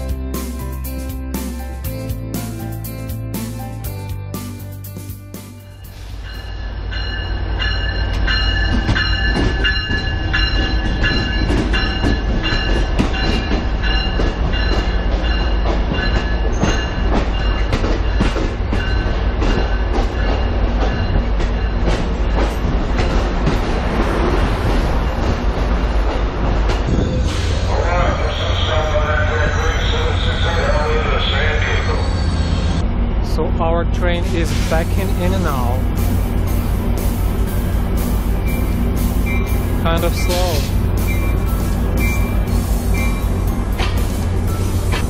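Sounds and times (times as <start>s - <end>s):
train rumbling: 0.0s - 45.0s
wheels clacking over rail joints: 7.6s - 24.2s, 42.0s - 45.0s.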